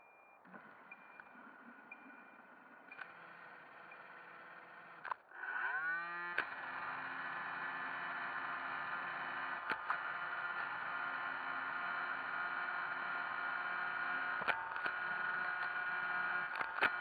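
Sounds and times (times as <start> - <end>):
sharp clicks: 0.5 - 5.3, 6.0 - 7.0, 7.7 - 10.9, 14.1 - 17.0
robot vacuum motors whirring: 3.1 - 17.0.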